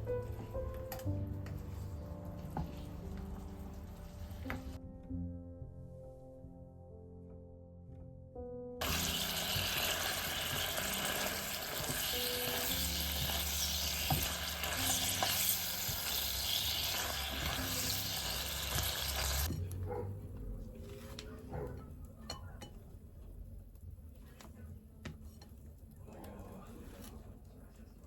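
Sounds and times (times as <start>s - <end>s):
soft background music: 0.0s - 28.0s
food sizzling in a frying pan: 8.8s - 19.5s.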